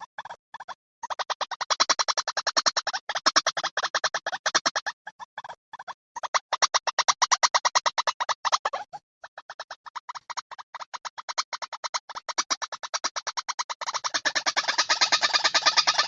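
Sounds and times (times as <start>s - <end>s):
waterhen harsh call notes: 13.8s - 16.0s.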